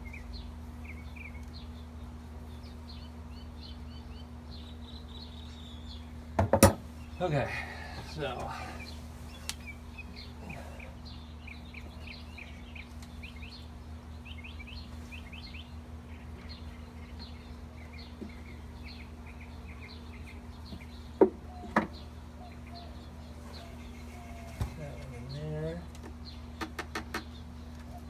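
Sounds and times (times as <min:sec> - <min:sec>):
low steady hum: 0:00.0 - 0:28.0
small birds chirping: 0:00.0 - 0:28.0
sharp knocks: 0:06.4 - 0:06.8.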